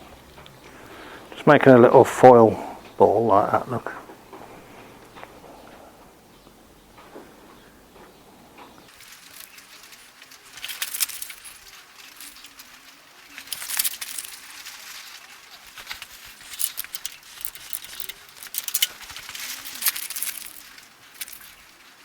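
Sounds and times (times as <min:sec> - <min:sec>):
aluminium foil crinkling: 0:08.8 - 0:22.0.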